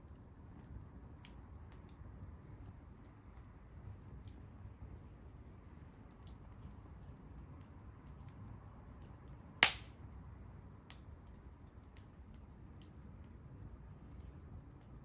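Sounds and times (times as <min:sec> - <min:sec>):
bonfire crackling: 0:00.0 - 0:15.0
sharp loud pop: 0:09.6 - 0:09.9.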